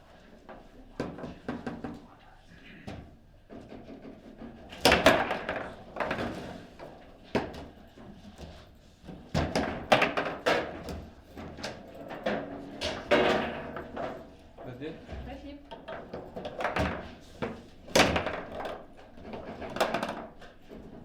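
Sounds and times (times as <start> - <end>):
foosball rods clacking: 3.7 - 6.5, 9.4 - 14.6, 15.7 - 20.9
foosball ball knocking: 4.8 - 6.5, 9.4 - 11.1, 12.2 - 14.4, 15.8 - 20.5.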